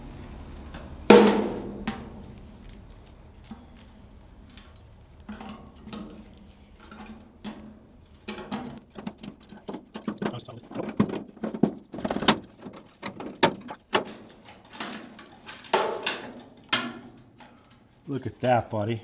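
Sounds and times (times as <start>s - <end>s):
loud knocks: 1.1s - 2.4s
sheet metal clanking and scraping: 3.4s - 18.6s.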